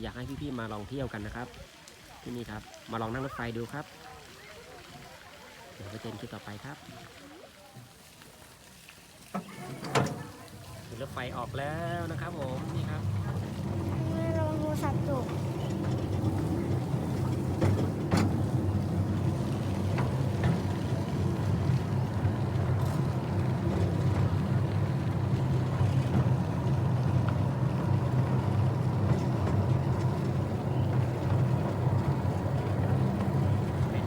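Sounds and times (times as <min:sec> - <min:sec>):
train rumbling on track: 0:09.4 - 0:34.0.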